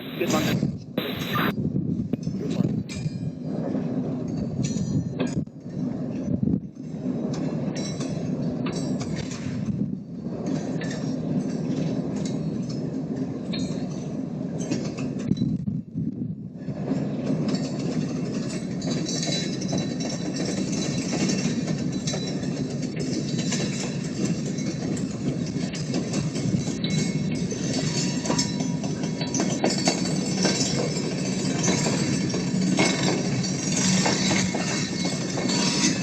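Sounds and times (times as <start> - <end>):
railroad cars rumbling: 0.0 - 36.0
wheels clicking over rails: 16.6 - 36.0.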